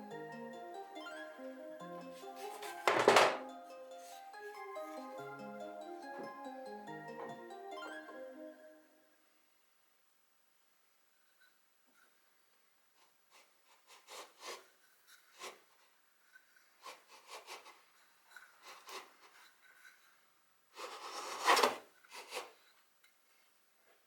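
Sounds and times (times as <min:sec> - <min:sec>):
wood scraped by hand: 0:20.8 - 0:22.5.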